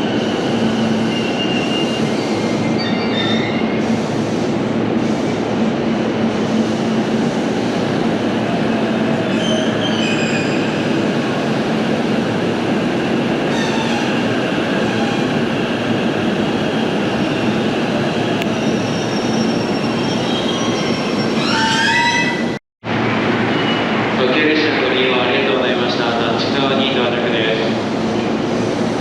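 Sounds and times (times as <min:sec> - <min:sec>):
high squealing wheels: 0:00.0 - 0:03.8, 0:08.6 - 0:11.2, 0:13.4 - 0:15.7, 0:16.6 - 0:22.6, 0:23.4 - 0:24.0
train rumbling on rails: 0:00.0 - 0:29.0.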